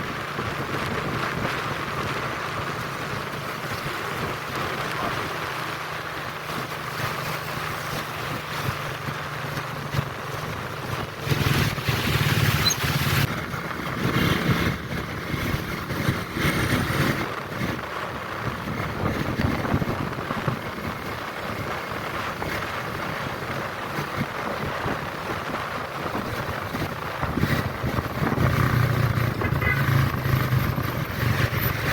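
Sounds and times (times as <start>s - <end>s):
wind noise on microphone: 0.0s - 31.9s
ship engine rumble: 24.9s - 31.9s.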